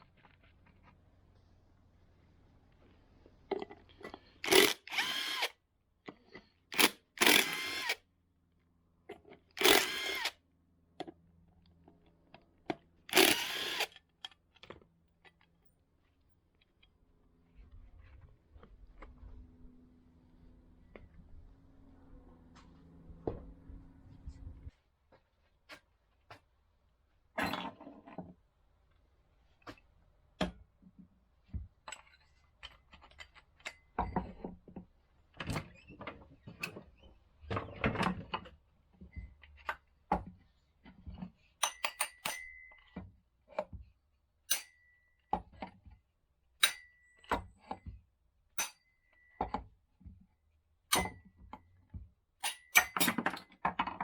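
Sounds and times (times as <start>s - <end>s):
tools clicking and knocking: 3.5s - 5.5s, 6.1s - 8.0s, 9.1s - 10.4s, 12.3s - 15.6s, 41.6s - 43.8s, 44.5s - 45.8s, 46.6s - 48.0s, 48.6s - 49.7s, 50.9s - 51.7s, 52.4s - 54.0s.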